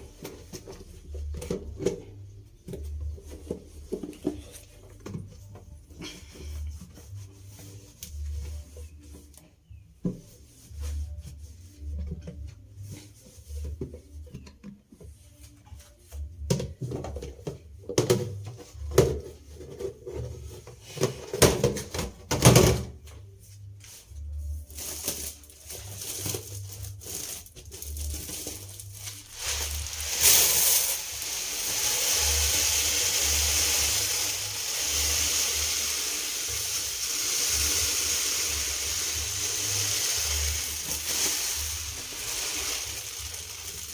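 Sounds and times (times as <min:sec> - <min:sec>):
containers and utensils clattering: 0:24.8 - 0:43.9
tap water running: 0:29.3 - 0:43.9.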